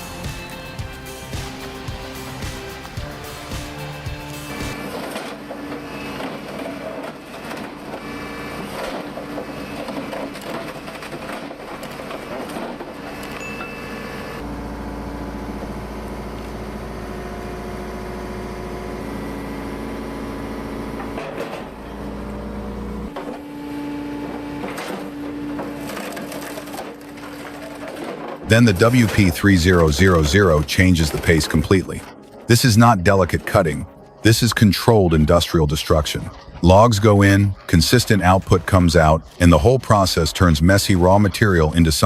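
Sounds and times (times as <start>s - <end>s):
deep engine drone: 14.3s - 32.4s.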